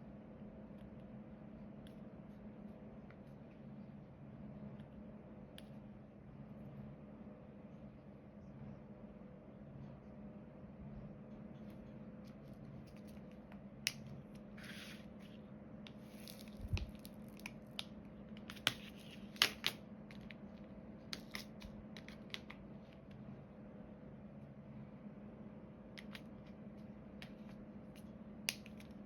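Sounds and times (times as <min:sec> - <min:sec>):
plastic film crinkling: 0:16.0 - 0:17.8.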